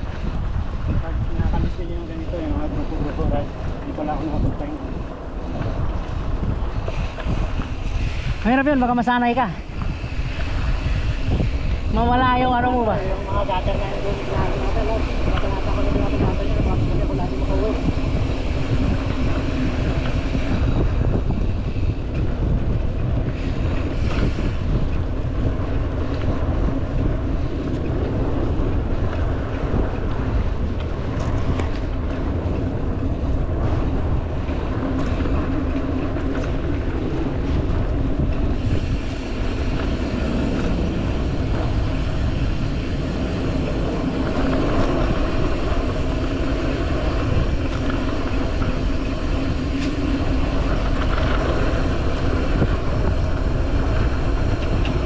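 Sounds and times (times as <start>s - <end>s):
wind buffeting microphone: 0.0s - 55.0s
tyres rolling over dirt: 23.4s - 55.0s.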